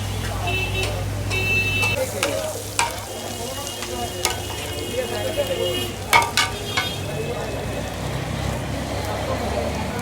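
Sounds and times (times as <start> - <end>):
meat sizzling in hot oil: 1.4 - 9.8
metal clacking on pan: 1.8 - 4.8, 6.1 - 7.1.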